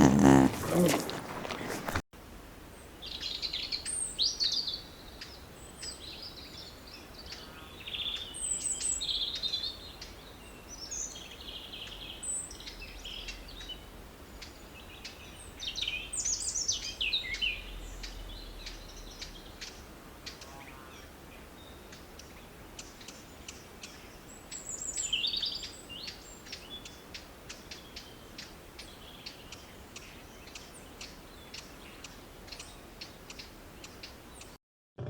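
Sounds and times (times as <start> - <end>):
birds chirping: 0.0 - 2.0.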